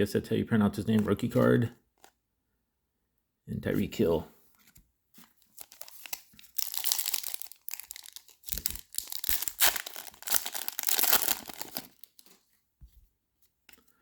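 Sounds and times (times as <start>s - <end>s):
plastic wrapper tearing and crinkling: 5.4s - 12.4s.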